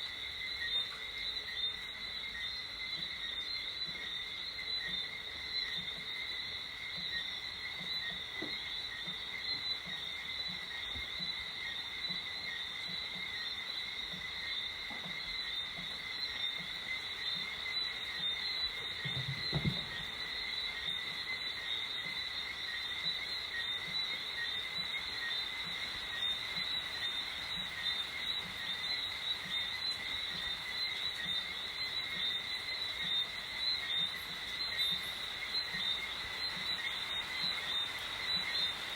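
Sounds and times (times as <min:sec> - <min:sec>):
frogs chirping: 0:00.0 - 0:38.9
low thump: 0:19.1 - 0:20.0.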